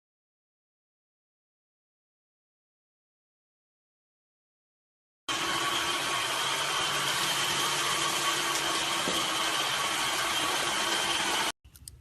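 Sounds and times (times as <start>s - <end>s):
machine whir: 5.3s - 11.5s.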